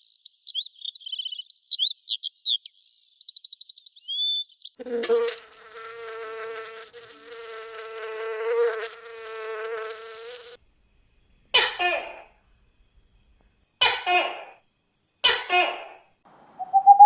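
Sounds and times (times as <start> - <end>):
insect buzzing: 4.8 - 13.8.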